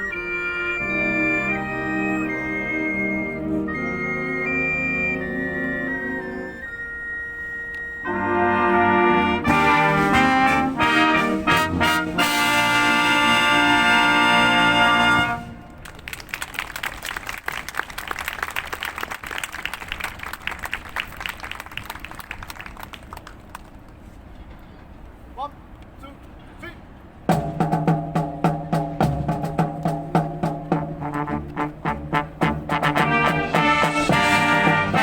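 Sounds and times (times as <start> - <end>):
wind band playing: 0.0 - 16.1, 27.3 - 35.0
audience applause: 15.8 - 23.6.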